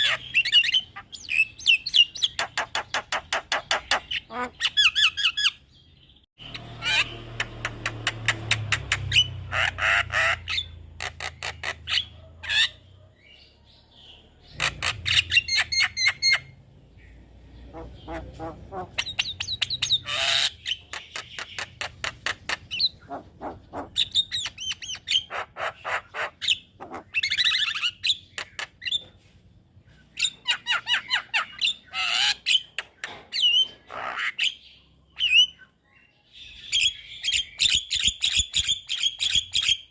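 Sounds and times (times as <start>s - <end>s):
myna chattering and squawking: 6.5s - 12.9s, 17.6s - 29.0s, 30.2s - 34.6s.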